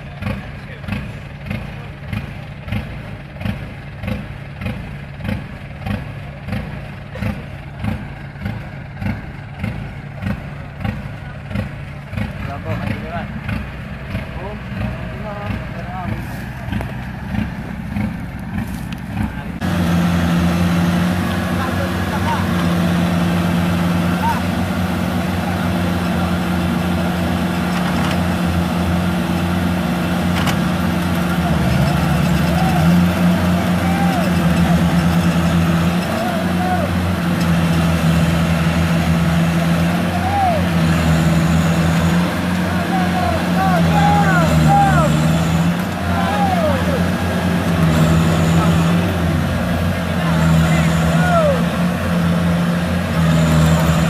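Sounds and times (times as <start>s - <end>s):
combine harvester diesel engine: 0.0s - 54.0s.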